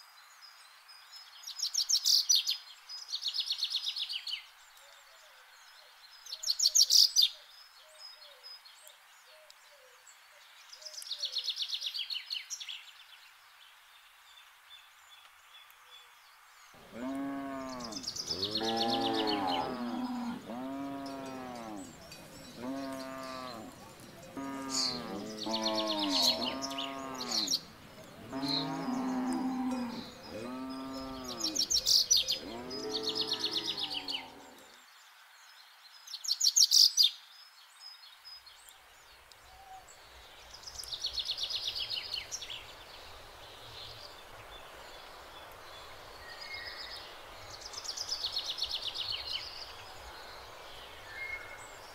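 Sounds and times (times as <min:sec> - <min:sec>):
birds chirping and trilling: 0:15.1 - 0:35.0, 0:37.8 - 0:51.9
cattle mooing: 0:16.8 - 0:27.5, 0:28.2 - 0:31.6.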